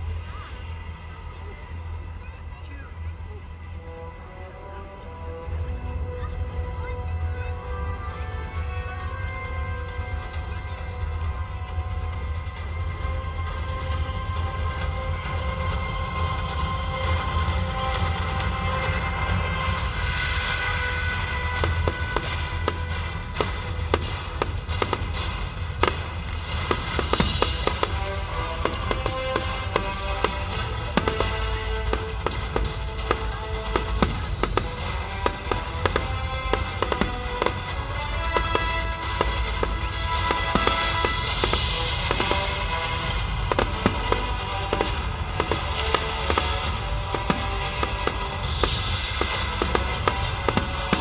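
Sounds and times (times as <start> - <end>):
music with held tones: 0.0 - 51.0
fireworks bangs and pops: 17.0 - 51.0.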